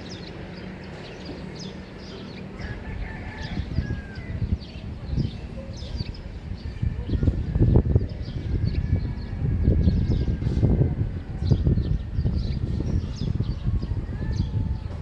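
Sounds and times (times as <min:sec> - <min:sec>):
low rumbling noise: 0:00.0 - 0:15.0
small birds chirping: 0:00.0 - 0:15.0
distant rooster crowing: 0:02.6 - 0:04.5.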